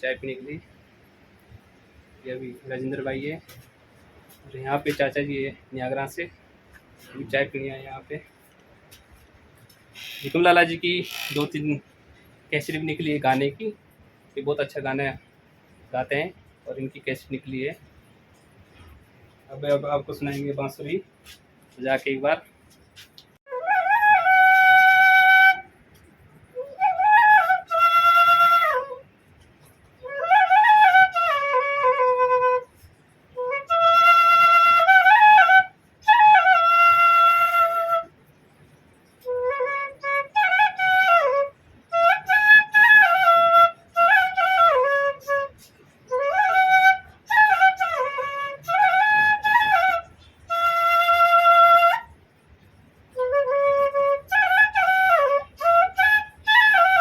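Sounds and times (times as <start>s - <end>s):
bamboo flute melody: 9.9s - 11.6s, 23.5s - 57.0s.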